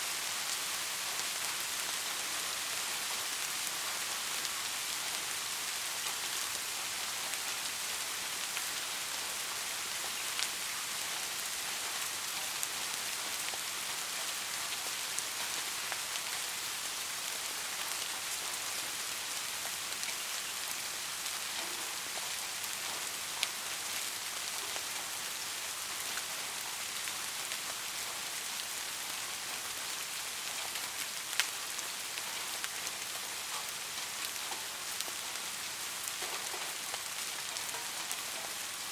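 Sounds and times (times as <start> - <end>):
gentle rain falling: 0.0 - 38.9
raindrops ticking: 30.5 - 38.9.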